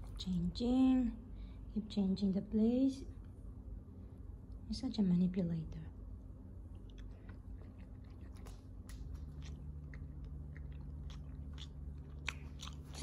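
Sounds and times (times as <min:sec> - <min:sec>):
low steady hum: 0:00.0 - 0:13.0
person chewing crunchy food: 0:06.7 - 0:13.0.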